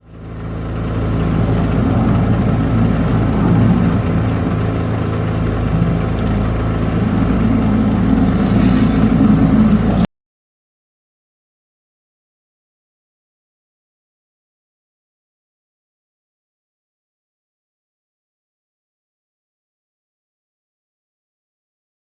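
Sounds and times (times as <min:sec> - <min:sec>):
engine running steadily: 0:00.0 - 0:10.1.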